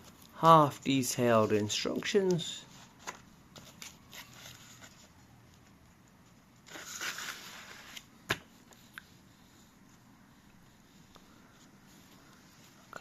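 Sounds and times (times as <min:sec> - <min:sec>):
paper pages rustling: 0:00.0 - 0:08.9.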